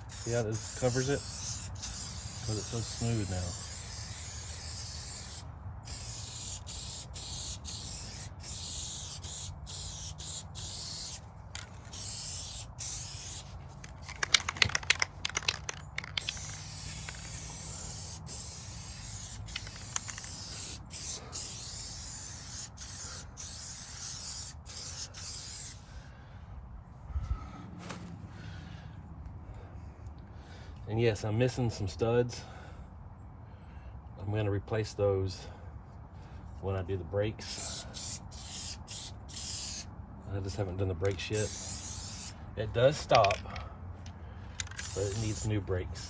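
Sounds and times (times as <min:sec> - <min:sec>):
spray can hissing: 0:00.0 - 0:11.2, 0:11.8 - 0:25.8, 0:37.5 - 0:39.9, 0:41.2 - 0:42.4, 0:44.6 - 0:45.5
rattle of sharp clicks: 0:11.5 - 0:12.0, 0:13.8 - 0:17.4, 0:19.5 - 0:20.6, 0:43.1 - 0:45.2.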